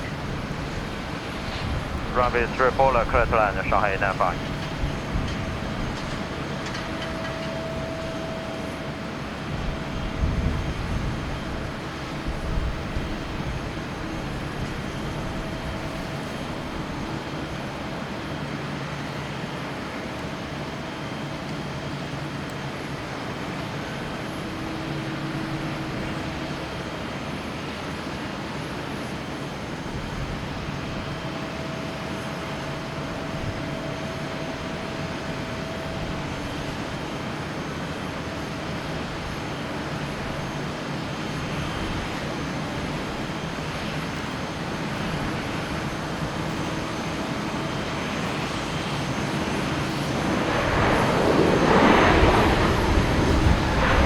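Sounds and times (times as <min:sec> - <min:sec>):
jet engine hum: 0:00.0 - 0:18.1, 0:29.5 - 0:54.0.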